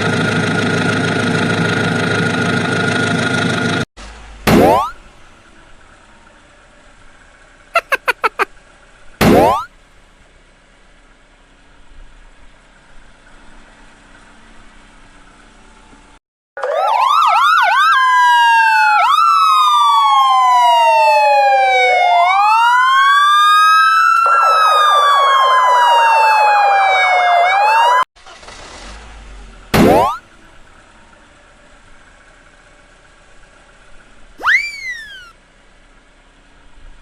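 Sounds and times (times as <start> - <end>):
fast siren warble: 4.5 - 5.0, 9.2 - 9.7, 16.6 - 28.0, 29.8 - 30.2, 34.4 - 35.4
police siren wailing: 4.5 - 6.3, 9.3 - 9.7, 16.6 - 28.1, 29.8 - 30.3, 34.4 - 35.4.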